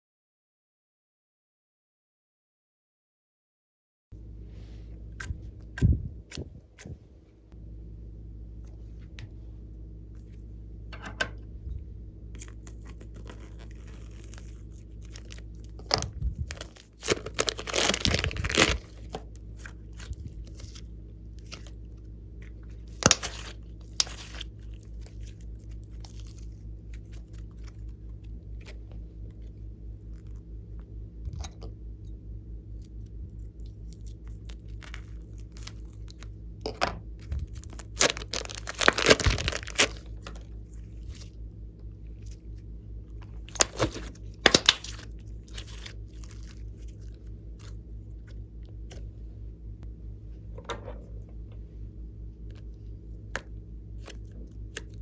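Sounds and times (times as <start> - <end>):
steady low hum: 4.2 - 55.0
sticky slime clicks and crackles: 12.4 - 20.8, 22.9 - 28.8, 33.6 - 41.3, 43.2 - 49.0.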